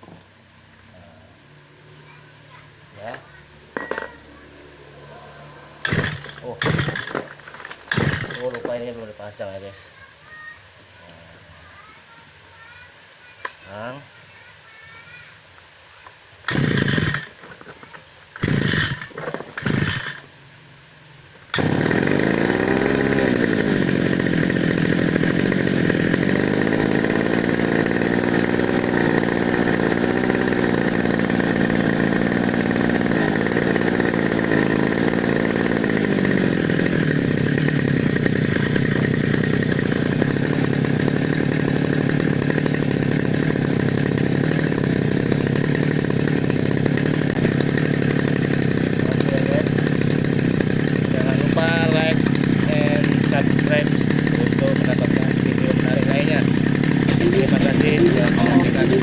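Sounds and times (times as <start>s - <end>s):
brush cutter engine running: 3.0s - 9.7s, 16.5s - 20.3s, 21.5s - 59.0s
recoil starter tugs: 4.9s - 9.0s, 16.4s - 20.3s, 21.5s - 59.0s.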